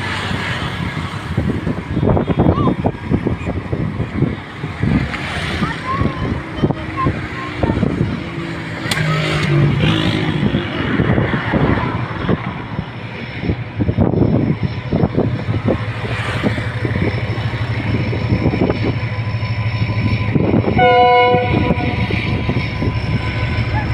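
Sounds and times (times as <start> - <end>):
train engine drone: 0.0 - 23.9
train horn blast: 20.6 - 23.2.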